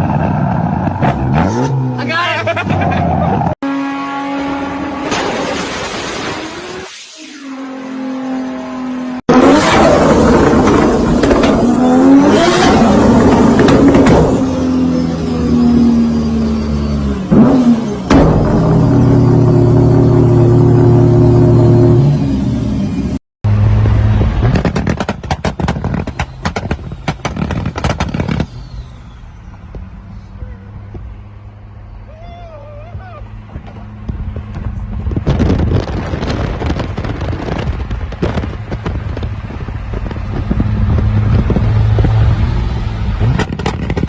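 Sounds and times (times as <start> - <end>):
engine revving against limiter: 7.5 - 23.0
exhaust pops and bangs: 10.3 - 11.8, 13.1 - 14.4, 24.2 - 28.6, 33.5 - 42.2, 43.2 - 44.0.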